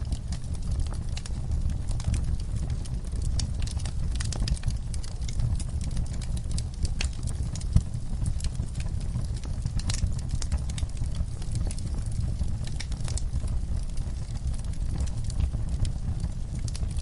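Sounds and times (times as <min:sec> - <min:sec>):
campfire crackling and popping: 0:00.0 - 0:17.0
low fire rumble: 0:00.0 - 0:17.0.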